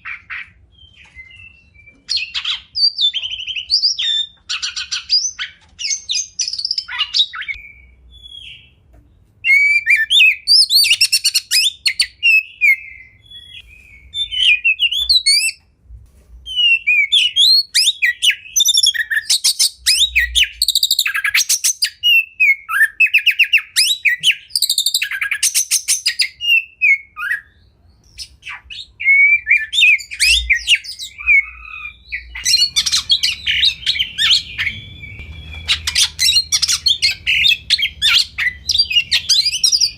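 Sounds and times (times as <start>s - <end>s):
bird singing whistled phrases: 0.1s - 8.8s, 9.4s - 15.6s, 16.5s - 39.9s
bird chattering: 28.1s - 39.9s.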